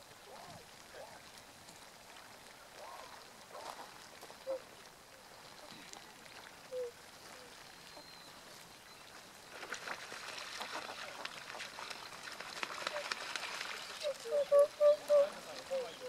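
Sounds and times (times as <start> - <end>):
crackling patter of clicks: 0.0 - 7.3, 8.4 - 16.0
swan calling: 2.7 - 4.8, 6.6 - 9.0, 12.1 - 16.0.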